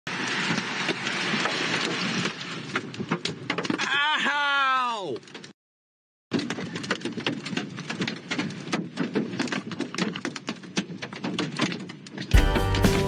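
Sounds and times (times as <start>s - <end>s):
rain beating on a vehicle: 0.1s - 3.8s.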